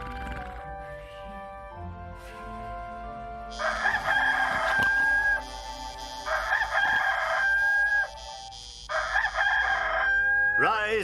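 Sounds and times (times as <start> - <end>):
rooster crowing: 3.5 - 10.6.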